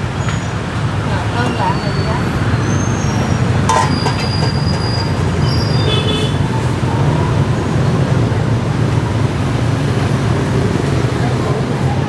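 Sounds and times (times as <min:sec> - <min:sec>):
street traffic rumble: 0:00.0 - 0:12.0
high squeal: 0:01.4 - 0:06.0.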